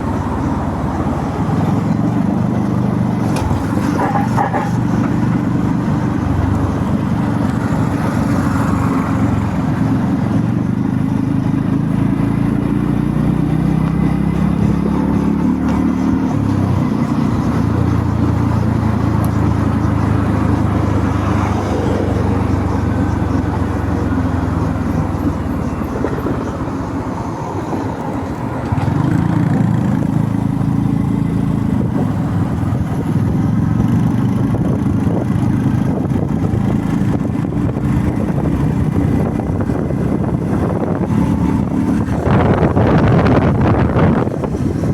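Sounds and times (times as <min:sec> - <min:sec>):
motorbike engine running: 0:00.0 - 0:44.9
wind noise on microphone: 0:13.7 - 0:44.9.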